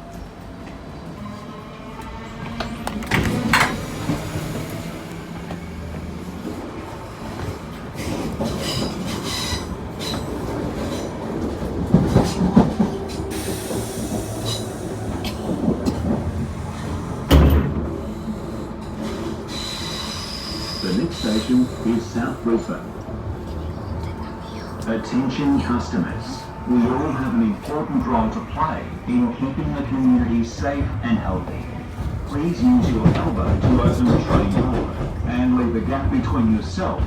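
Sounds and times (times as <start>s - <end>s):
train wheels rumbling on track: 0.0s - 37.0s
train clunks: 1.9s - 37.0s
high wheel squeal: 19.5s - 22.2s.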